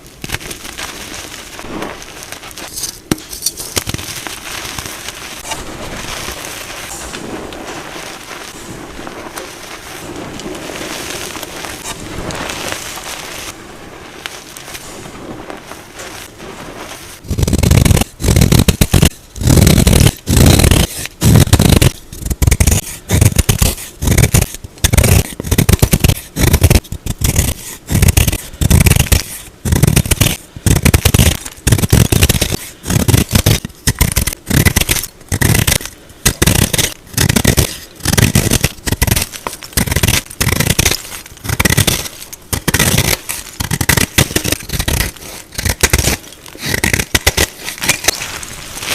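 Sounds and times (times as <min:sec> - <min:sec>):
chalk crunching: 0:00.0 - 0:48.9
chalk scraping and crumbling: 0:00.0 - 0:48.9.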